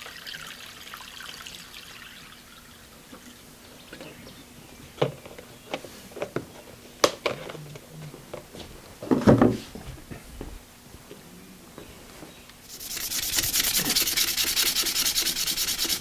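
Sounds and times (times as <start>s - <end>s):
short rustling scrape: 12.6s - 16.0s.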